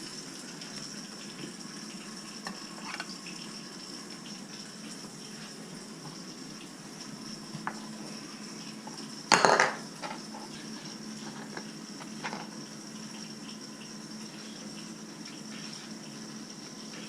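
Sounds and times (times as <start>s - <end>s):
bowl clattering against dishes: 9.3s - 10.2s.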